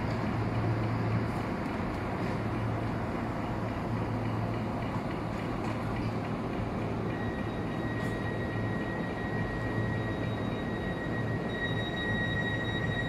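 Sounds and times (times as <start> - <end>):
train rumbling: 0.0 - 13.0
high whine: 6.6 - 13.0.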